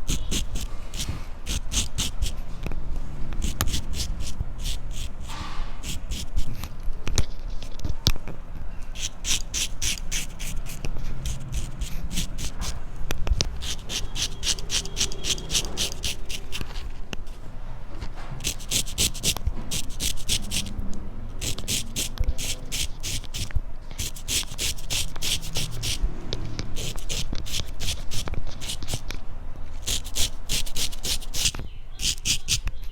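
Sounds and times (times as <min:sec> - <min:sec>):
razor scraping hair: 0:00.0 - 0:02.5, 0:03.4 - 0:06.7, 0:08.9 - 0:12.8, 0:13.5 - 0:16.9, 0:18.4 - 0:20.8, 0:21.4 - 0:26.1, 0:26.7 - 0:29.1, 0:29.8 - 0:32.6.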